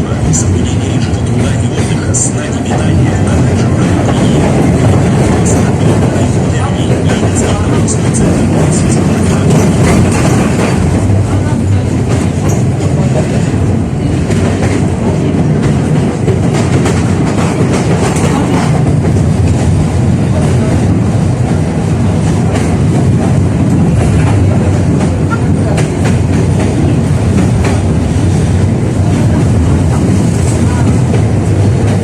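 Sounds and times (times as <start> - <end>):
tram wheels rumbling on rails: 0.0 - 32.0
clacks over rail joints: 0.1 - 19.8.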